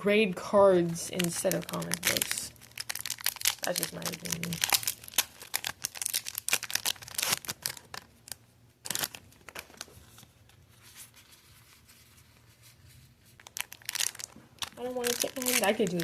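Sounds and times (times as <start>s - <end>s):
foil wrappers crinkling and tearing: 0.8s - 10.5s, 13.3s - 16.0s.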